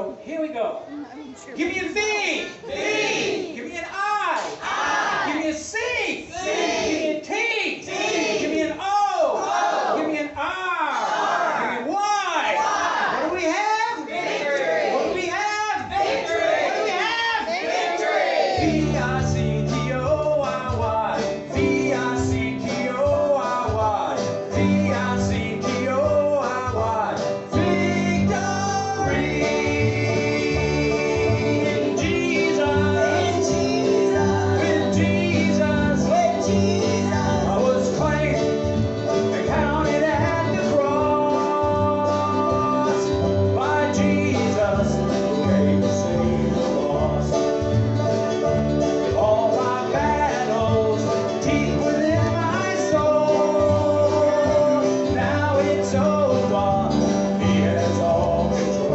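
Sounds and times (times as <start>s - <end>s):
group singing gospel: 2.5s - 3.6s, 4.5s - 5.4s, 6.2s - 8.8s, 9.4s - 10.1s, 14.0s - 20.7s, 21.4s - 47.7s, 49.0s - 58.9s
acoustic guitar: 18.6s - 58.9s.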